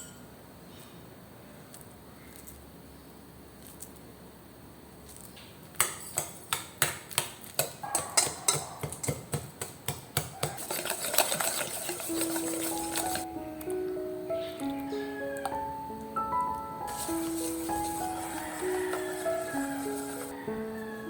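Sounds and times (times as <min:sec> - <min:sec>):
utensil clinking against bowl: 0:07.6 - 0:13.3.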